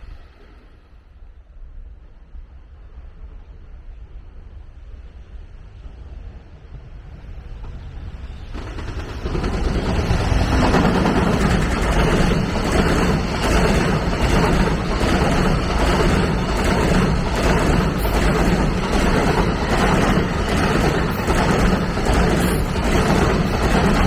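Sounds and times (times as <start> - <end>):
train rumble: 0.0 - 24.0
train wheel clacks: 8.4 - 24.0.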